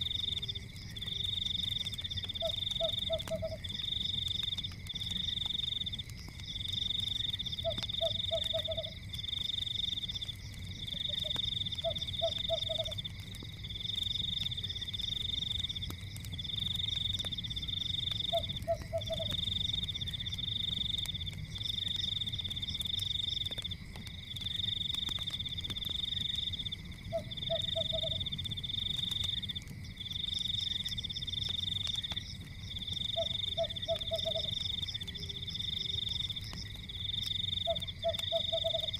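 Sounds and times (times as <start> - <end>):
fire crackling: 0.0 - 38.9
frogs croaking: 0.0 - 38.9
frogs trilling: 0.0 - 38.9.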